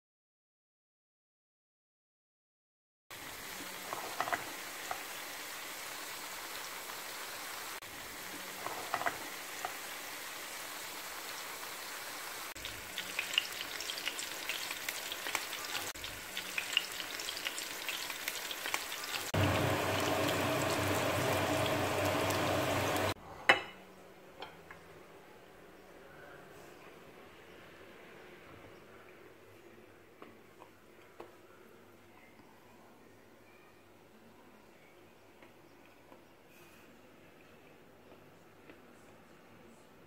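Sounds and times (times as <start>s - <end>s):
vegetables sizzling in hot oil: 3.1s - 23.2s
oil crackles and pops: 12.6s - 23.2s.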